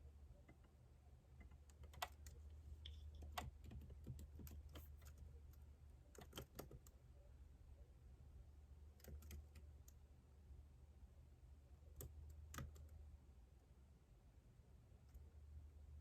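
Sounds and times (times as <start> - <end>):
faint keyboard typing: 0.4 - 7.1, 8.8 - 10.0, 11.8 - 13.1.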